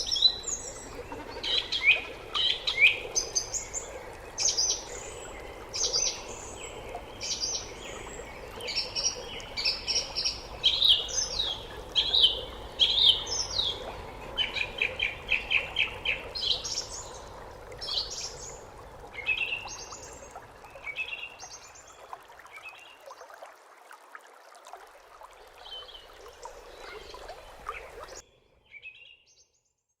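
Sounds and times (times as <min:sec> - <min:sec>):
birds chirping and trilling: 0:00.0 - 0:18.6.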